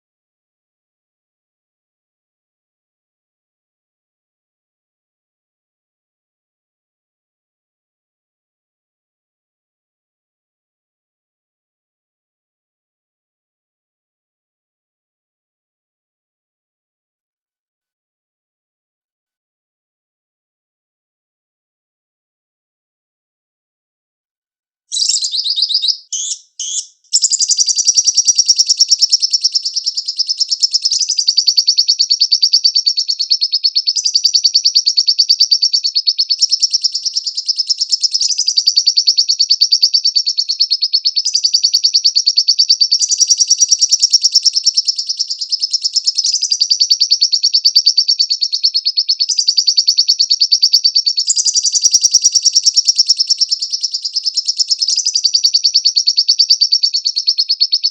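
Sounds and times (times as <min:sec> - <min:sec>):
lovebird chattering trill: 0:24.9 - 0:57.9.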